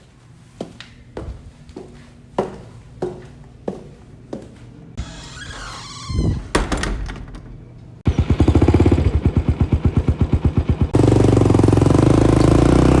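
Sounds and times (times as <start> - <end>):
mechanical knocks: 6.1 - 7.8
rapid mechanical pounding: 8.1 - 12.6.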